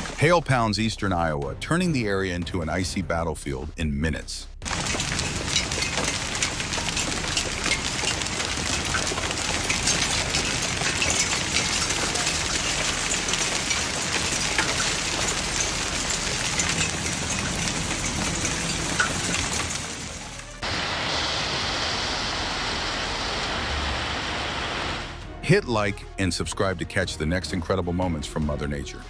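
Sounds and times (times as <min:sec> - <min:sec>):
hail pounding down: 0:00.0 - 0:00.6, 0:04.6 - 0:25.2.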